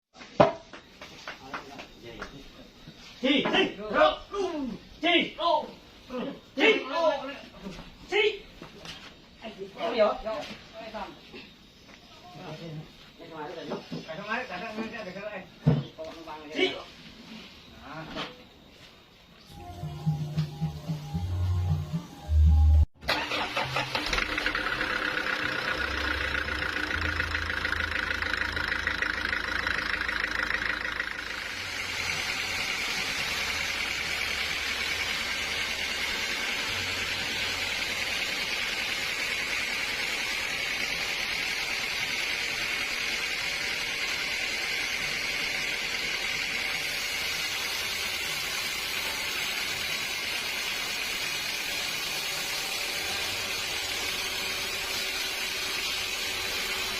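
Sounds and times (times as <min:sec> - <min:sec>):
sawmill machinery whirring: 0:19.5 - 0:56.9.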